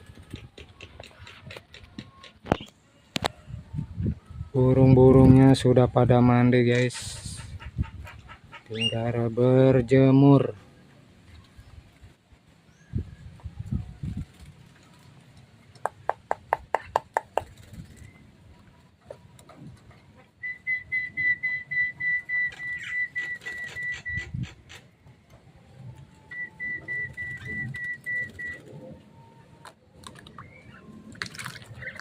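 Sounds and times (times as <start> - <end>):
bird high whistled notes: 20.4 - 24.4, 26.3 - 28.7, 30.3 - 30.9.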